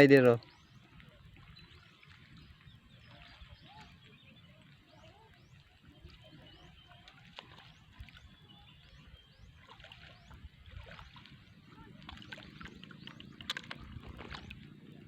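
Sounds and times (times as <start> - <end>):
faint birds chirping: 0.0 - 15.0
low uneven rumble: 10.4 - 15.0.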